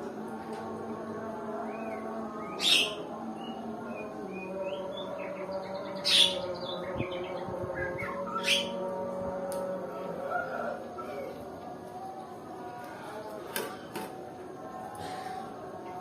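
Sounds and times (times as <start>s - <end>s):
loud harsh bird calls: 1.7s - 7.4s, 8.0s - 8.8s.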